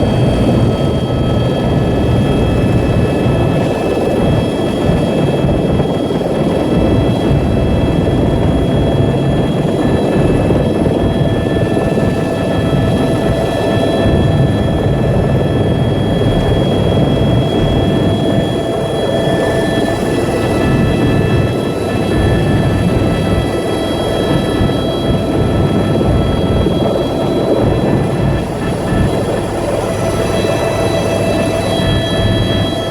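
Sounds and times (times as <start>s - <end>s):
thin high whines: 26.8s - 32.9s.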